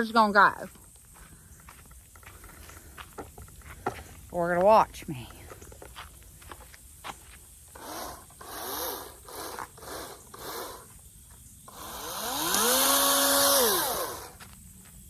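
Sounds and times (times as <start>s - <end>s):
chainsaw motor revving: 7.7s - 11.0s, 11.7s - 14.4s.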